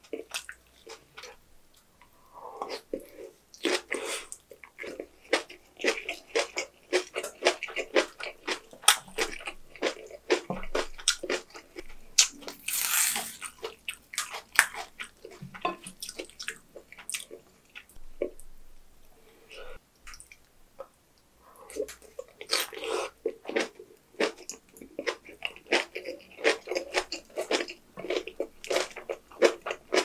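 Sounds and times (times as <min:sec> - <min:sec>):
wet rustle of leaves torn: 0:12.6 - 0:13.4
crunchy wet chewing: 0:21.7 - 0:30.0.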